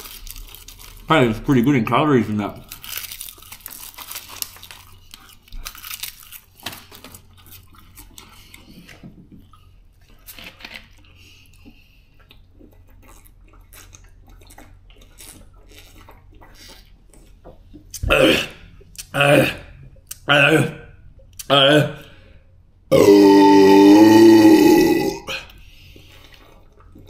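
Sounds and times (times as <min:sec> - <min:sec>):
person crunching crisp snack: 0:00.0 - 0:01.4, 0:02.6 - 0:08.7, 0:10.1 - 0:17.4, 0:22.9 - 0:27.0.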